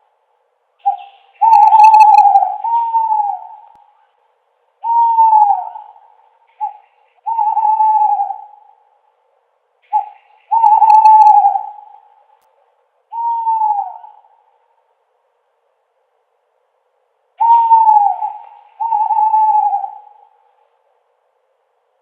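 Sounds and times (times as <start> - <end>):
owl hooting: 0.8 - 4.2, 4.8 - 9.1, 9.8 - 12.4, 13.1 - 14.7, 17.4 - 20.8.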